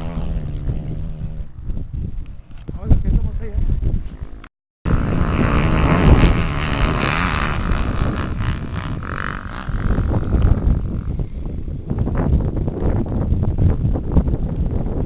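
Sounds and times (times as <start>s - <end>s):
small race engine revving: 0.0s - 1.5s, 4.2s - 11.4s
rough noise: 0.0s - 12.6s.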